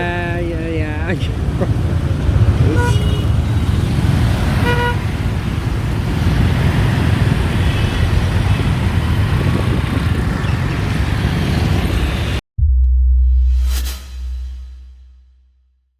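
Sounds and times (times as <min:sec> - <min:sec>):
wind and road noise on motorbike: 0:00.0 - 0:12.4.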